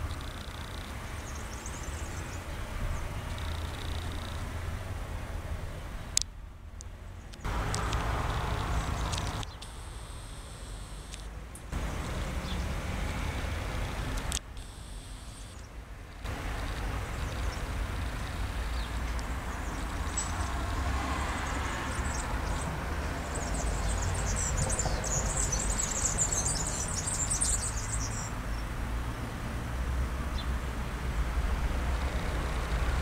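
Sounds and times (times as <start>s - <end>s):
small birds chirping: 15.2s - 20.6s, 21.4s - 28.7s.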